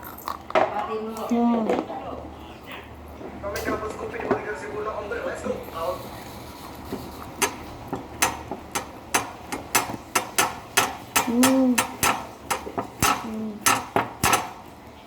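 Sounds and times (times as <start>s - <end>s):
utensils clicking on a plate: 6.6s - 14.7s
person humming: 11.2s - 12.0s, 13.2s - 13.7s.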